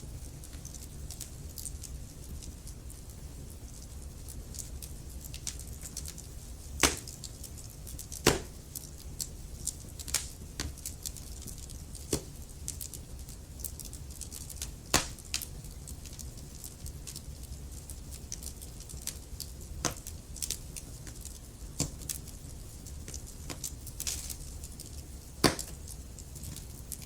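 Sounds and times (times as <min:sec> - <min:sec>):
logs crackling in a fireplace: 0:00.0 - 0:27.0
low fire rumble: 0:00.0 - 0:27.0
loud pops of burning logs: 0:04.4 - 0:13.0, 0:13.6 - 0:17.2, 0:18.0 - 0:27.0.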